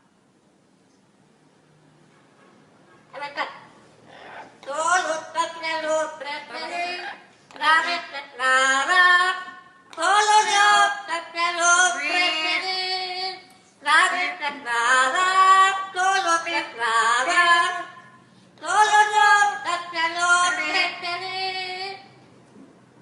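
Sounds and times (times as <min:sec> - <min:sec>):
parrot singing a melody: 0:03.2 - 0:09.0.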